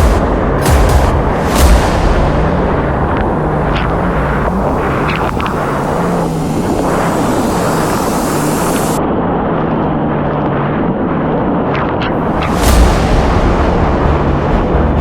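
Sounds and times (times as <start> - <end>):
wind and water rushing: 0.0 - 9.0
watercraft engine droning: 0.0 - 10.2.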